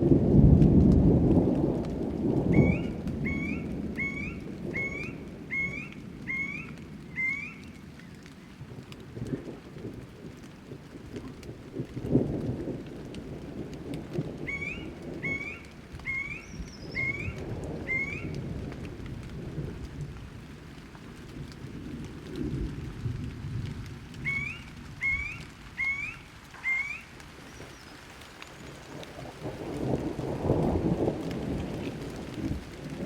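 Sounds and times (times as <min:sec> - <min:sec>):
steady rain: 0:00.0 - 0:33.0
thunder rumbling: 0:00.0 - 0:33.0
bird calling in rising notes: 0:02.5 - 0:07.8, 0:14.5 - 0:18.3, 0:24.2 - 0:28.0.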